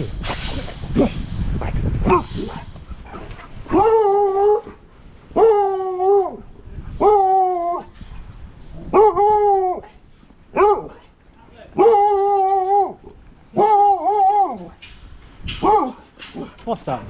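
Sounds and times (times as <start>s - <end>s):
dog howling: 3.1s - 8.0s, 8.8s - 10.0s, 11.8s - 14.8s.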